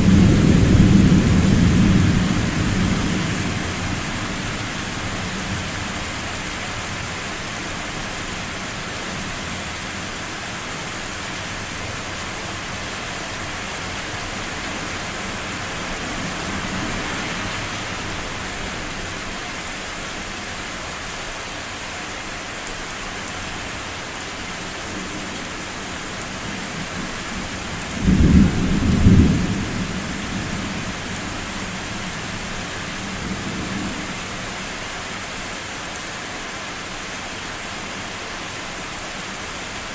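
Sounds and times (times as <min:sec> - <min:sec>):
thunder rumbling: 0:00.0 - 0:05.1, 0:27.4 - 0:31.4
steady rain: 0:00.0 - 0:39.9.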